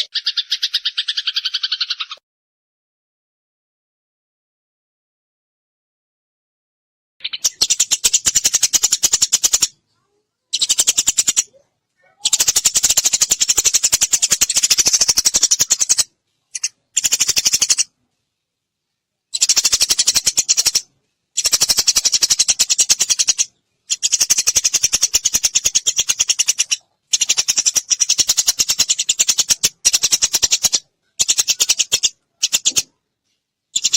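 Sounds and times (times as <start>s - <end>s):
sparrow chirping rapidly: 0.0s - 2.2s, 7.2s - 17.9s, 19.3s - 33.0s, 33.7s - 33.9s.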